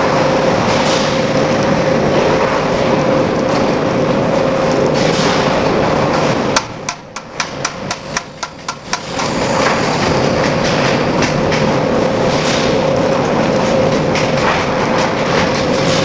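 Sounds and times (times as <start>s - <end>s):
industrial machinery humming: 0.0s - 16.0s
sharp knocks: 6.6s - 11.8s.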